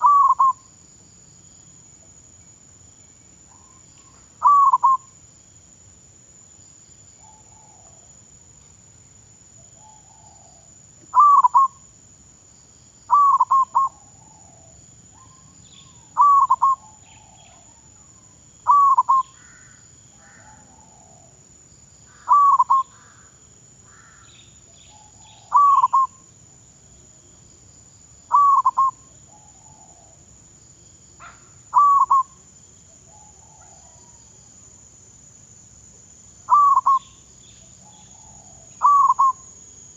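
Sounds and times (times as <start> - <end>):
dove cooing: 0.0 - 0.6, 4.4 - 5.0, 11.2 - 11.8, 13.1 - 15.4, 16.1 - 17.7, 18.7 - 19.6, 20.2 - 21.4, 22.3 - 22.9, 24.9 - 26.2, 28.3 - 30.1, 31.2 - 32.4, 33.1 - 34.2, 36.5 - 37.1, 37.8 - 39.4
faint bird chirps: 0.0 - 0.8, 1.9 - 5.2, 7.1 - 8.1, 9.0 - 11.9, 13.0 - 21.4, 22.0 - 26.2, 28.2 - 30.2, 31.2 - 34.3, 36.4 - 39.5.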